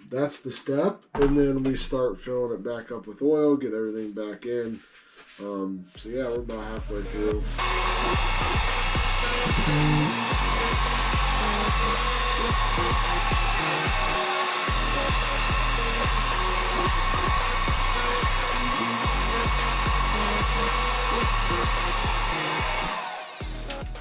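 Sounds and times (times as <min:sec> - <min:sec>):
heat gun blowing: 0:07.5 - 0:24.0.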